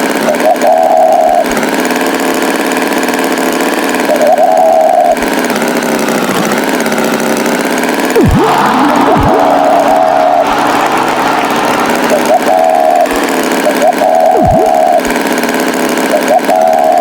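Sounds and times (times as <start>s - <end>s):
cartoon tractor engine: 0.0s - 17.0s
swooping pitch glides: 8.1s - 15.1s
short high-pitched tone: 8.2s - 15.1s.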